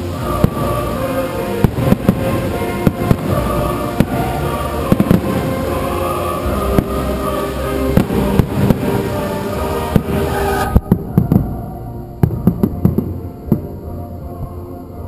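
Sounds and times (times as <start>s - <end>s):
firework shells bursting: 0.0s - 11.6s
music playing: 0.0s - 15.0s.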